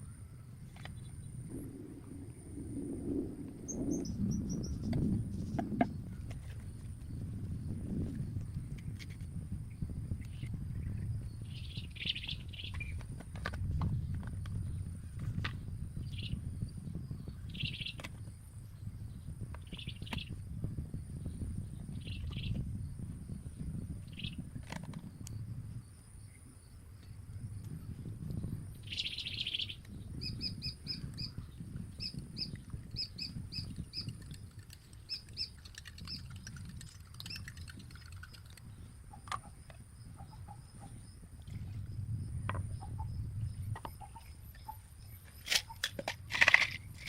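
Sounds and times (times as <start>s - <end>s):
steady low rumble: 0.0s - 47.0s
sharp clicks: 33.6s - 39.8s
wild birds calling: 43.7s - 45.8s.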